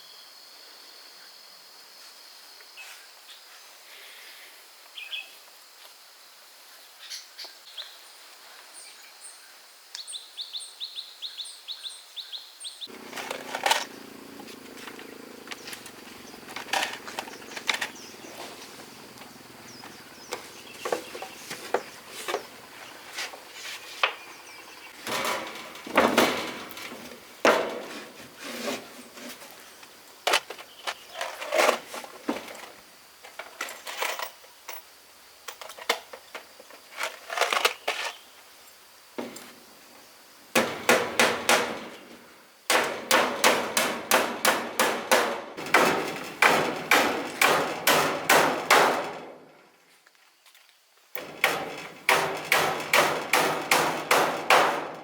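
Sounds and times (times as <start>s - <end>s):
hammering on wood: 40.6s - 42.0s, 42.7s - 49.4s, 51.2s - 55.0s.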